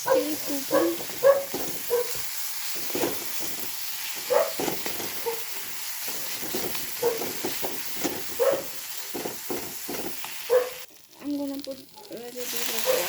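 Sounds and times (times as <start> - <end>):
food sizzling in oil: 0.0 - 13.0
spatula scraping a pan: 0.5 - 10.5.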